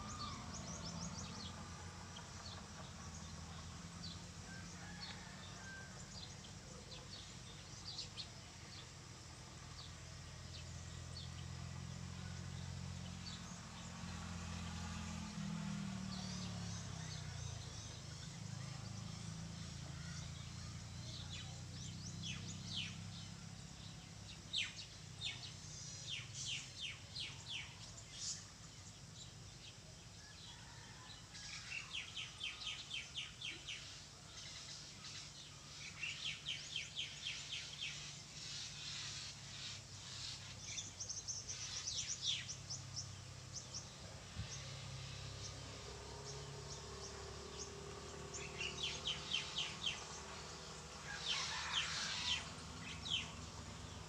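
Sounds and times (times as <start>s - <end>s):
songbirds trilling: 0.0s - 54.0s.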